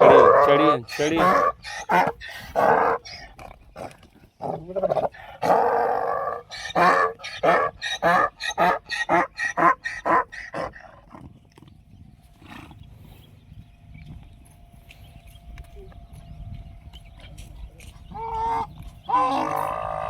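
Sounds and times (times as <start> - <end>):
donkey braying: 0.0 - 11.4, 17.8 - 20.0.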